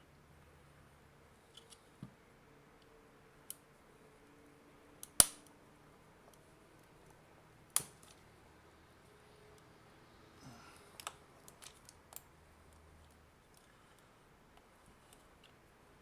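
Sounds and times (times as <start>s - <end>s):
hard plastic clicks and snaps: 5.0s - 5.5s, 7.7s - 8.2s, 11.0s - 12.3s.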